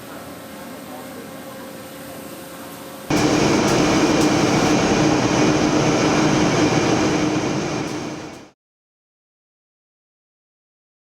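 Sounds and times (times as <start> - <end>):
woodworking machinery humming: 3.1 - 8.5.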